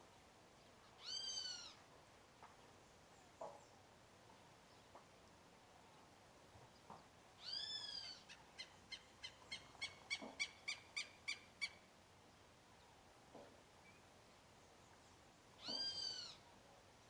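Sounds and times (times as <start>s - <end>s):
bird calling: 7.4s - 11.8s, 15.6s - 16.4s.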